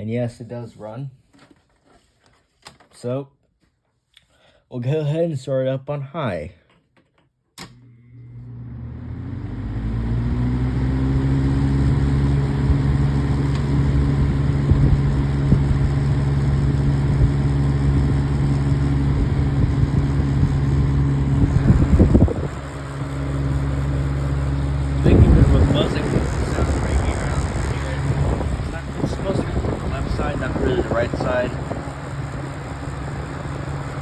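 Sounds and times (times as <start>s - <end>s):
fan motor hum: 7.6s - 34.0s
burst of rough noise: 10.1s - 34.0s.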